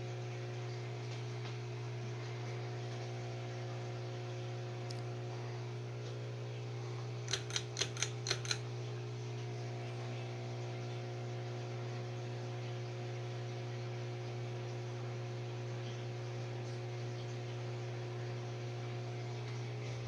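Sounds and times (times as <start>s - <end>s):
ceiling fan motor hum: 0.0s - 20.0s
quick clicks: 7.3s - 8.6s.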